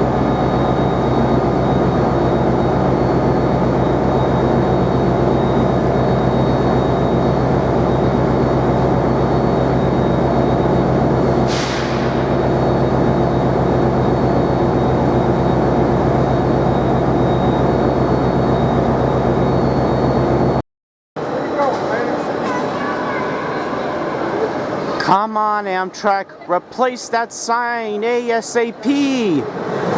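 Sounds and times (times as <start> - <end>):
faint high whine: 0.0 - 20.6
steady hum: 0.0 - 20.6.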